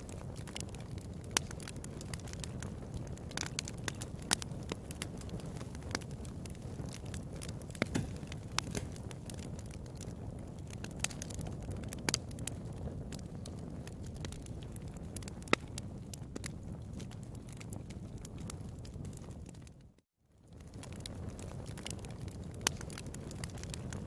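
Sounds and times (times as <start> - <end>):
low rumble of flames: 0.0 - 24.0
wood fire crackling: 0.0 - 24.0
sharp pops: 7.8 - 9.0.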